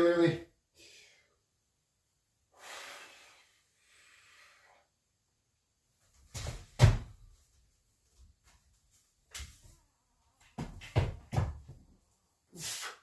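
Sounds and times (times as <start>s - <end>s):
short hissing sounds: 12.5s - 13.0s.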